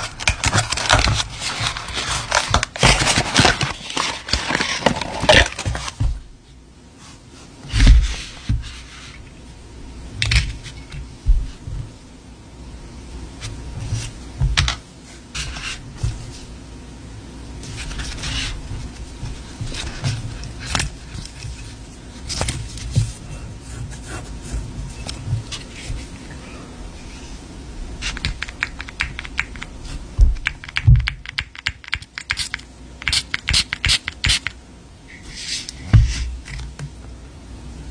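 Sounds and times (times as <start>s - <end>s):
taps and clicks on packaging: 30.4s - 34.6s.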